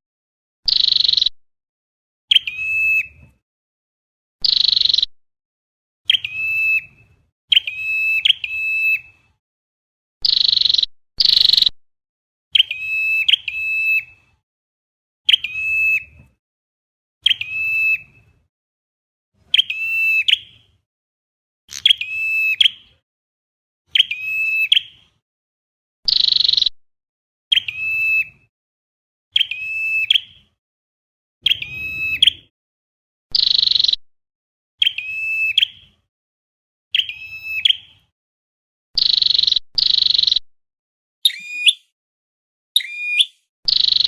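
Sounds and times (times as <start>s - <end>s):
high bird calls: 2.3s - 3.2s, 4.4s - 5.1s, 6.1s - 9.2s, 12.6s - 14.2s, 15.3s - 16.1s, 21.7s - 22.9s, 31.4s - 32.5s, 34.8s - 35.9s, 36.9s - 38.0s, 39.0s - 40.4s, 41.2s - 41.9s, 42.8s - 44.0s.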